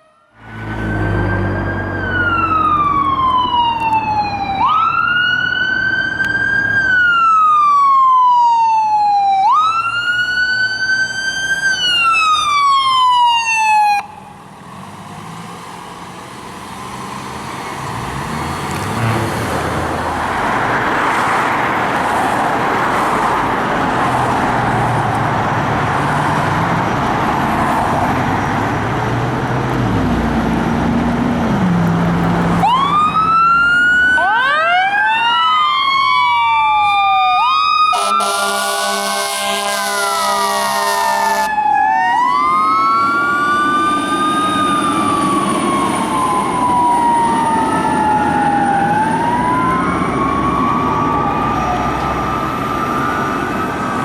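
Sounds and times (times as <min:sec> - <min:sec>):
fire engine siren wailing: 0:00.0 - 0:54.0
road noise: 0:00.0 - 0:54.0
truck engine revving: 0:00.4 - 0:06.9, 0:14.4 - 0:34.2.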